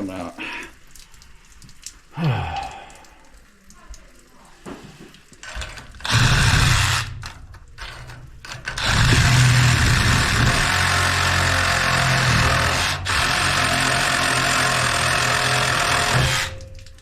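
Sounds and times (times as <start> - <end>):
power saw cutting steel pipe: 6.0 - 7.2, 7.9 - 16.6.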